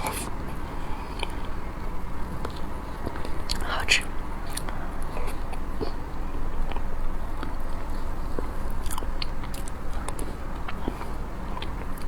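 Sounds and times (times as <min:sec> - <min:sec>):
person chewing food: 0:06.6 - 0:12.0.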